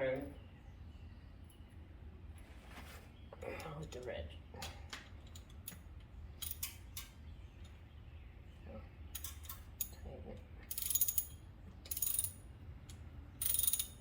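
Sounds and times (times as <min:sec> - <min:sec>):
socket ratchet clicking: 0:10.7 - 0:12.4, 0:13.4 - 0:14.0.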